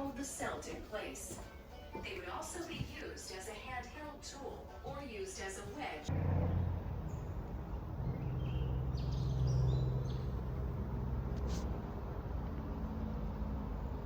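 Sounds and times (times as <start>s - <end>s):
steady low rumble: 6.1s - 14.0s
bird chirps: 7.0s - 10.4s.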